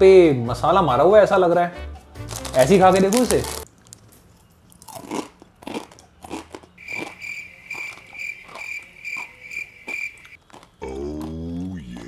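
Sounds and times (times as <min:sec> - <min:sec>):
crunchy chewing of dry noodles: 0:02.2 - 0:12.0
high cricket-like chirp: 0:06.8 - 0:10.4.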